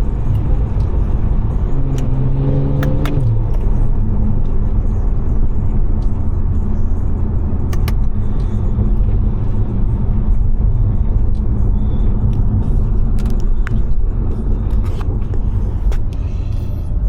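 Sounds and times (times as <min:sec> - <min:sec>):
car engine droning: 0:00.0 - 0:17.0
road noise: 0:00.0 - 0:17.0
sharp clicks: 0:07.7 - 0:08.1.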